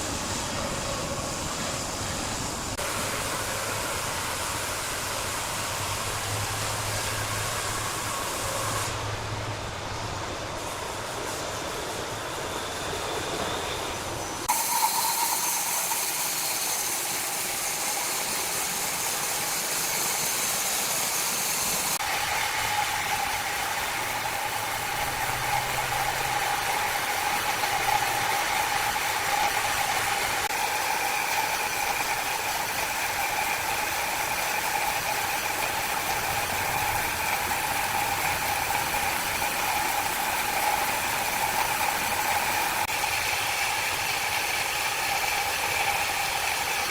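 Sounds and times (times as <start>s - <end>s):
wood-cutting saw whining: 10.6s - 46.9s.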